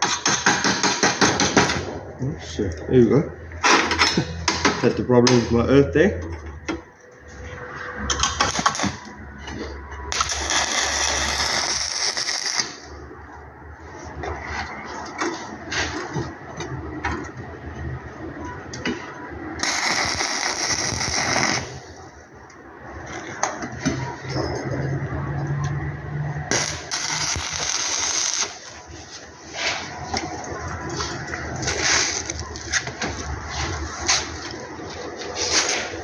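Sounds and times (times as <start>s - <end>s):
welding arc crackling: 8.4s - 9.2s, 10.1s - 13.1s, 19.6s - 22.3s, 26.5s - 28.8s, 31.6s - 32.7s.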